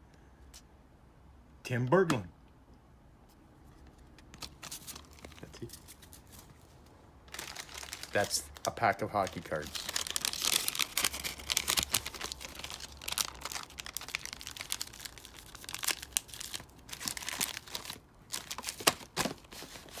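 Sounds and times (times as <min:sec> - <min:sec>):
paper wrapper crinkling: 0:04.3 - 0:20.0.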